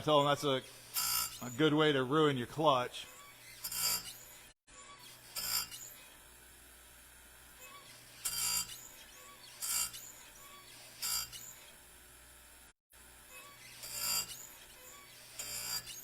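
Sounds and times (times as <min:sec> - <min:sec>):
grinder wheel grinding saw chain: 0:00.1 - 0:02.0, 0:03.0 - 0:06.3, 0:07.5 - 0:11.9, 0:13.2 - 0:16.0.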